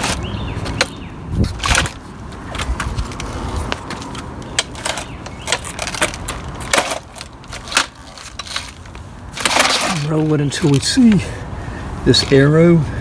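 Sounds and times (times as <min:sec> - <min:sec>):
rustling: 0:00.0 - 0:11.4.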